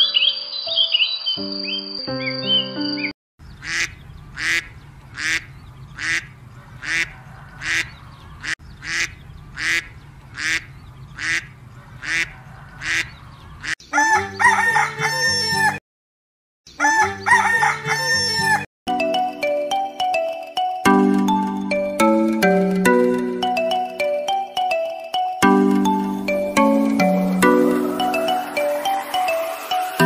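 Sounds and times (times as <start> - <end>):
domestic fowl calling: 3.6 - 15.8, 16.7 - 18.6
jingly music: 18.9 - 30.0.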